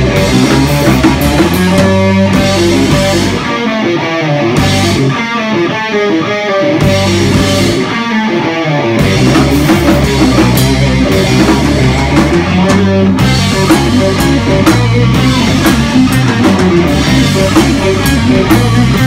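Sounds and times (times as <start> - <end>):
drums and cymbal crashes: 0.0 - 3.4, 4.6 - 5.1, 6.8 - 7.8, 9.0 - 19.0
heavy bass: 0.0 - 5.2, 6.8 - 8.1, 8.8 - 19.0
distorted electric guitar riffing: 0.0 - 19.0.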